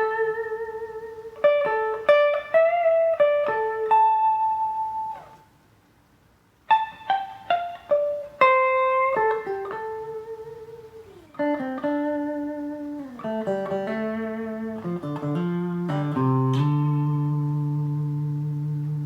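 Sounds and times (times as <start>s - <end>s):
clean electric guitar notes: 6.7s - 19.0s.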